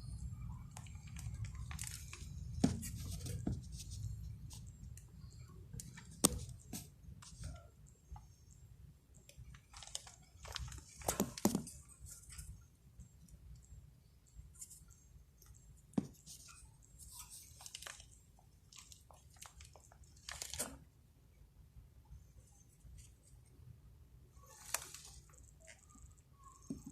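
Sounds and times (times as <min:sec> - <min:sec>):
birds pecking and scratching: 0:00.6 - 0:20.8.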